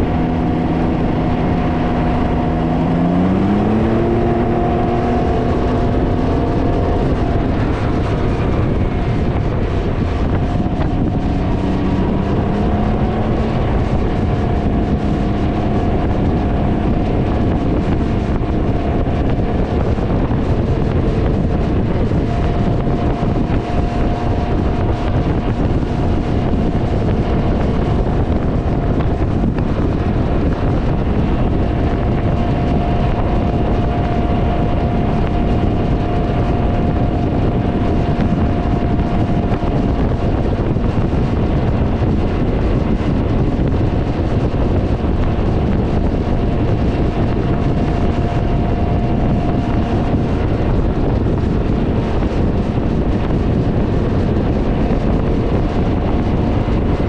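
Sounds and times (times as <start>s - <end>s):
loud steady engine rumble: 0.0s - 57.0s
wind buffeting microphone: 0.0s - 57.0s.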